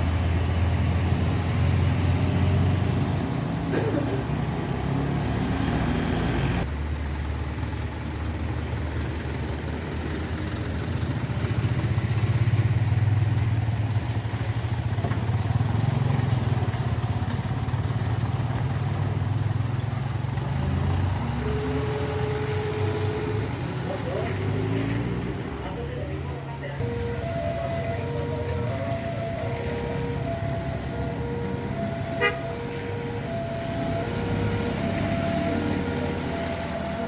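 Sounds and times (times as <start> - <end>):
truck engine humming: 0.0 - 37.0.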